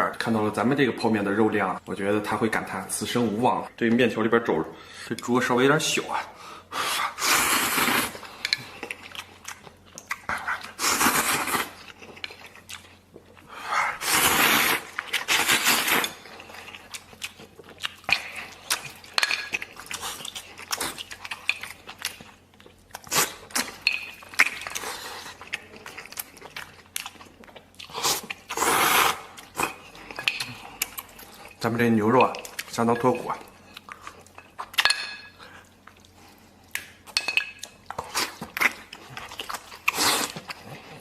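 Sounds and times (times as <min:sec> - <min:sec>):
slurping noodles: 0:06.8 - 0:08.2, 0:13.8 - 0:16.1, 0:27.9 - 0:29.3
wet chewing and smacking: 0:08.2 - 0:13.5, 0:14.8 - 0:28.6, 0:29.3 - 0:41.0.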